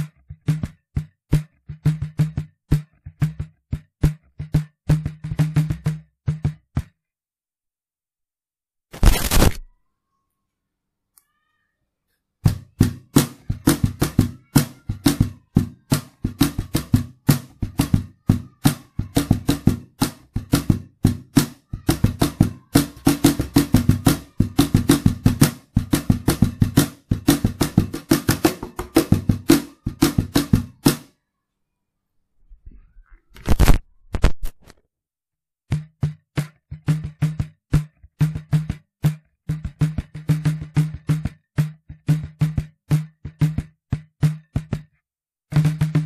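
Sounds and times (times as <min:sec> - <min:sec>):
cajon hand strokes: 0:08.9 - 0:09.6, 0:33.4 - 0:34.8.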